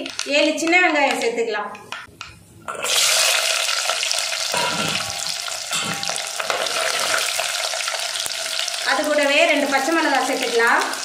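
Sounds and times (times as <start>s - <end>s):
shallots sizzling in hot oil: 2.8s - 11.0s
steel spoon stirring: 4.5s - 8.0s.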